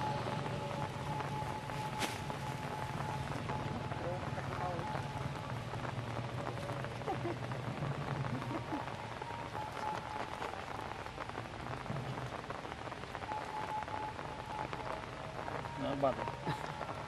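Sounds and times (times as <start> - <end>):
light rain falling: 0.0 - 17.0.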